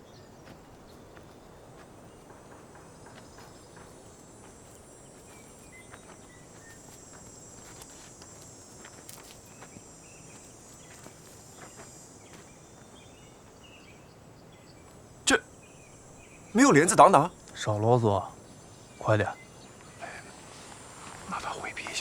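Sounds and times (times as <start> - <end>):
insects chirring: 0.0 - 22.0
light footsteps: 0.2 - 13.9.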